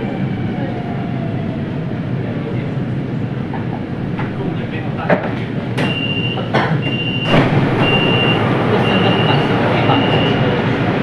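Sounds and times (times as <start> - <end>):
train car hum: 0.0 - 11.0
train door warning beeps: 5.8 - 10.7.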